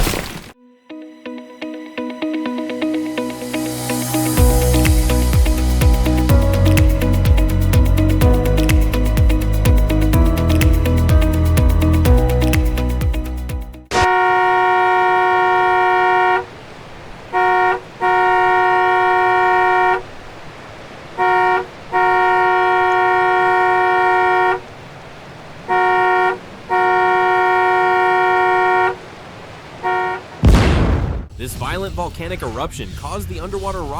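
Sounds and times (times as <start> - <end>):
horn blasts sounding a chord: 0.6 - 9.0, 13.8 - 16.5, 17.3 - 20.1, 21.2 - 24.6.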